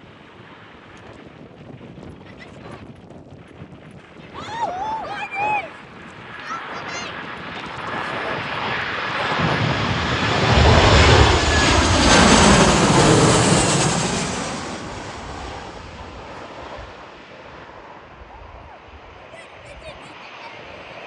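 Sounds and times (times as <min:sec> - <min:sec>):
airplane passing overhead: 0:04.2 - 0:21.0.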